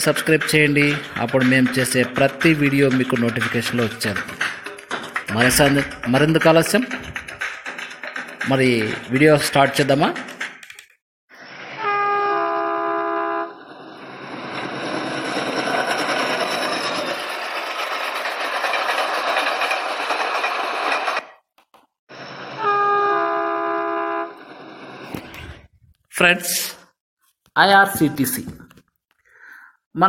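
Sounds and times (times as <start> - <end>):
train rolling noise: 0.0 - 10.5, 13.0 - 21.3, 22.1 - 25.5
train horn chord: 11.8 - 13.7, 22.6 - 24.4.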